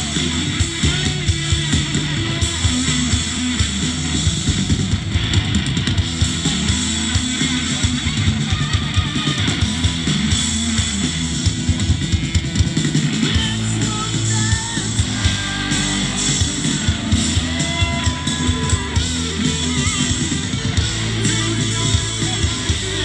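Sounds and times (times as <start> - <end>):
rock band playing live: 0.0 - 23.0.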